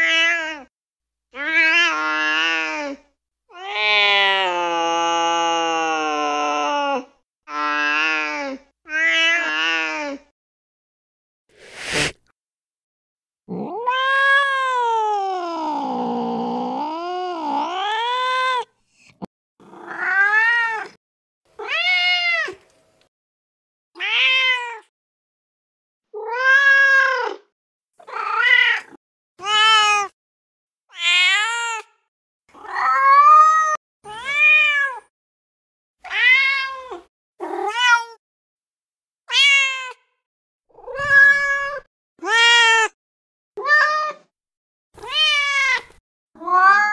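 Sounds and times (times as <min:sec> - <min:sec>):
cat yowling: 0:13.5 - 0:18.7, 0:19.7 - 0:21.0, 0:21.6 - 0:22.6, 0:26.2 - 0:30.1, 0:30.9 - 0:31.9, 0:32.6 - 0:35.0, 0:36.1 - 0:38.2, 0:39.3 - 0:40.0, 0:40.7 - 0:43.0, 0:43.6 - 0:44.3, 0:45.0 - 0:46.9
cats meowing: 0:19.7 - 0:21.0, 0:39.3 - 0:40.0, 0:40.7 - 0:43.0, 0:45.0 - 0:46.9.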